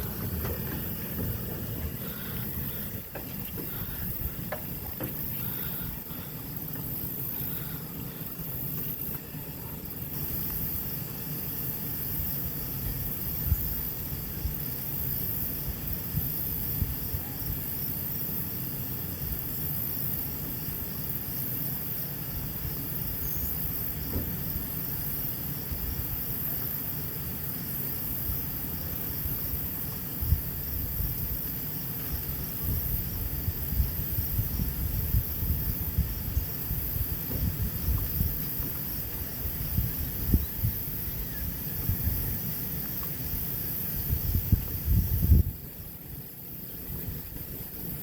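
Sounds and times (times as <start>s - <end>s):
low rumble: 0.0s - 6.2s
high-pitched hiss: 0.0s - 48.0s
insects chirping: 0.0s - 48.0s.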